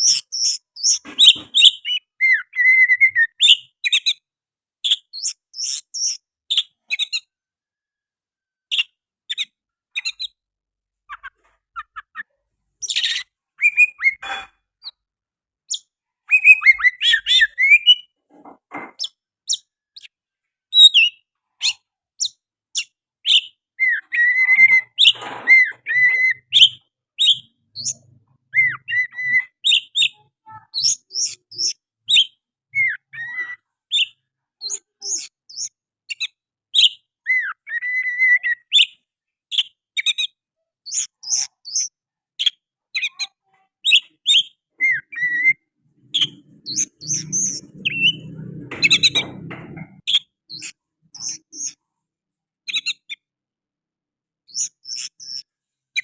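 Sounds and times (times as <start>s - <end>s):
bird singing chirps and whistles: 0.0s - 4.2s, 4.9s - 7.2s, 11.8s - 14.2s, 15.7s - 18.1s, 20.7s - 40.3s, 40.9s - 43.1s, 43.9s - 45.6s, 54.5s - 56.0s.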